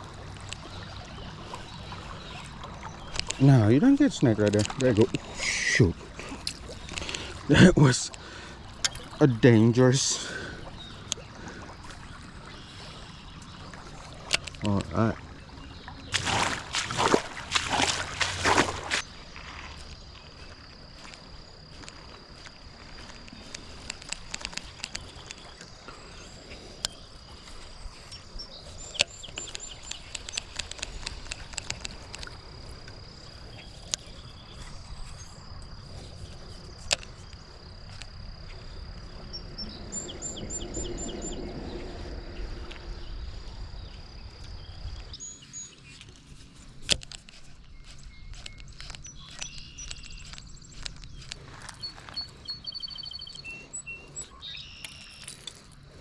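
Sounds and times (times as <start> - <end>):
high insect drone: 0.0 - 56.0
sharp clicks: 28.9 - 32.4
rapid high bird chirps: 47.7 - 55.2.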